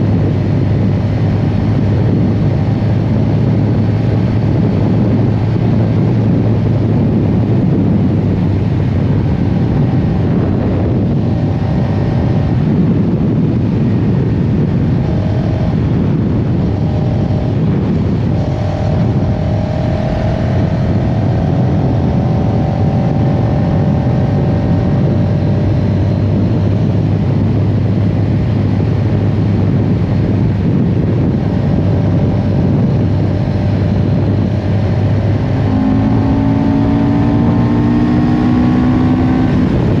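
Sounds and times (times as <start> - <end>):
motorcycle engine running: 0.0 - 40.0
wind and road noise: 0.0 - 40.0.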